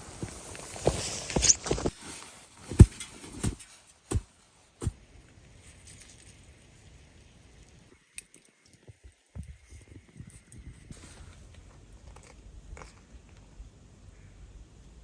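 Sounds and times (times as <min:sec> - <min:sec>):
footsteps crunching in snow: 0:00.0 - 0:05.0.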